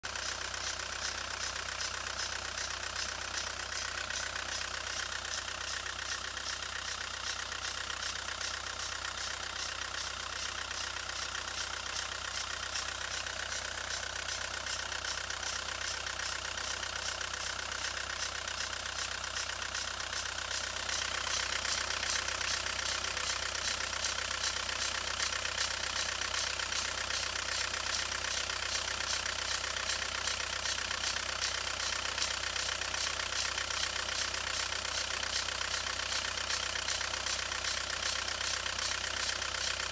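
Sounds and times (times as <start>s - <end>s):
diesel engine idling with ticking clatter: 0.0s - 39.9s.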